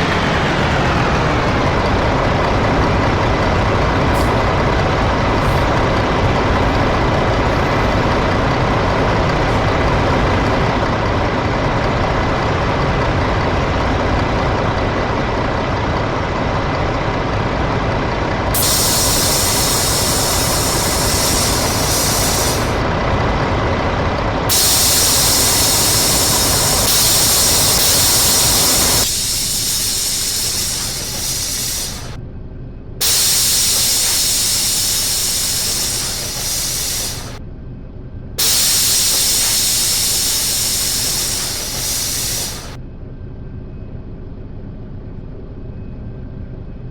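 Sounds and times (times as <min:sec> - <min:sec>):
bus diesel engine running: 0:00.0 - 0:42.8
loud steady hiss: 0:01.1 - 0:10.8, 0:18.5 - 0:22.8, 0:24.5 - 0:32.2, 0:33.0 - 0:37.4, 0:38.4 - 0:42.8.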